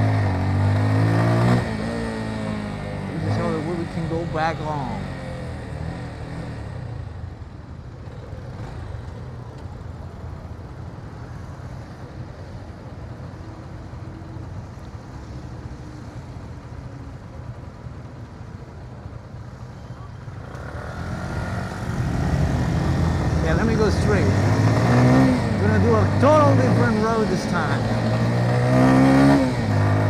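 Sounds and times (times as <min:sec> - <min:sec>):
motorcycle engine rumble: 0:00.0 - 0:30.0
wind and road noise: 0:00.0 - 0:30.0.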